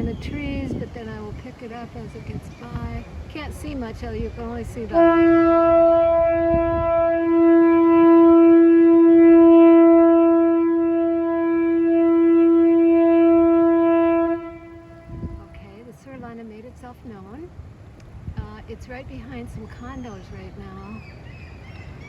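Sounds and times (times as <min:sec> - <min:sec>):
ship's horn blast: 0:04.8 - 0:16.2.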